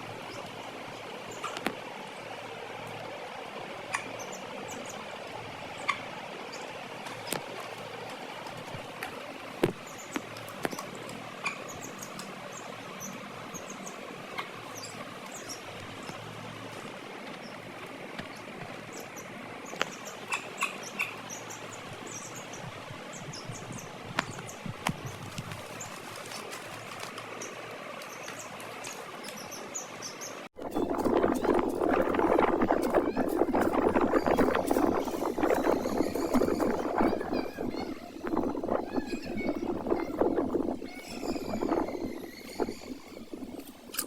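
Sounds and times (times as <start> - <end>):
chicks peeping: 30.7 - 43.5.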